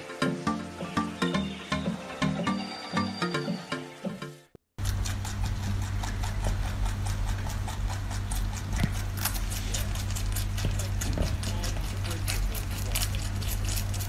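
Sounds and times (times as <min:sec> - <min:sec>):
rabbit chewing crunchy stem: 0:04.8 - 0:14.0
steady low hum: 0:04.8 - 0:14.0.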